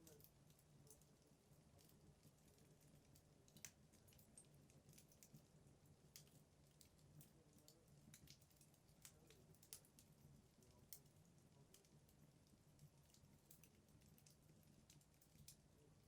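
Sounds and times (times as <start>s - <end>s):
logs crackling and popping: 0.0s - 5.5s, 6.1s - 11.1s
faint low hum: 0.0s - 16.0s.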